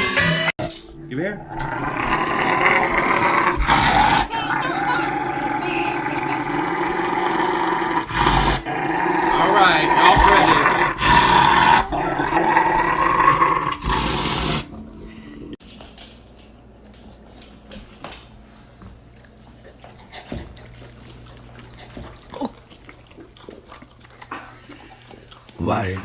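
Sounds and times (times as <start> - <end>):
dog vocalizing loudly: 1.6 - 14.8.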